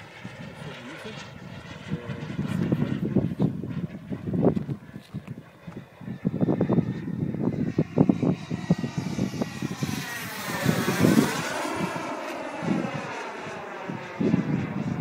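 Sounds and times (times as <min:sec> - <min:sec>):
model jet engine flying past: 0:00.0 - 0:15.0.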